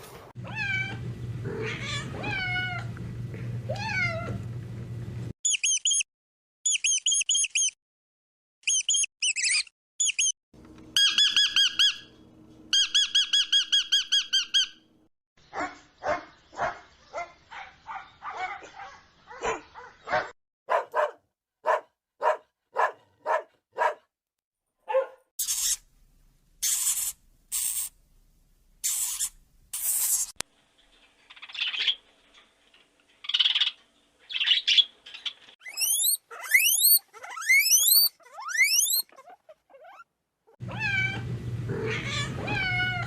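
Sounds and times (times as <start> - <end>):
high squeaky chirps: 5.4 - 6.1, 6.7 - 7.8, 8.6 - 10.4, 11.0 - 12.2, 25.4 - 25.9, 26.6 - 28.0, 28.8 - 30.4, 33.2 - 40.1
quick warbling squeaks: 8.6 - 10.4, 25.4 - 25.8, 26.6 - 27.9, 35.6 - 40.1
harsh squawks: 25.4 - 25.8, 35.6 - 41.2
repeated animal calls: 35.6 - 40.1.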